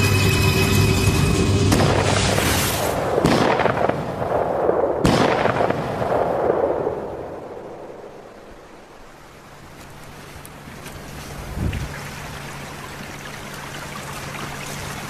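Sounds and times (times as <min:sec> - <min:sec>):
tense music: 0:00.0 - 0:05.6
rifle shots with rolling echo: 0:01.7 - 0:09.2.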